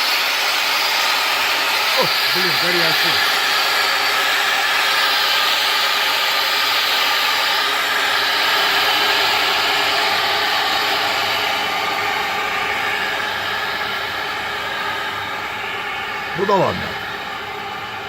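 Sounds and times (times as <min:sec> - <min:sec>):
gas burner hissing rush: 0:00.0 - 0:18.0.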